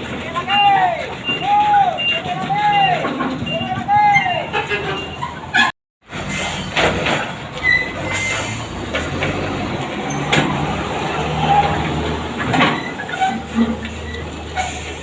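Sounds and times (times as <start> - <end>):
heavy vehicle engine drone: 0.0 - 15.0
knocks and rattles: 1.0 - 4.0.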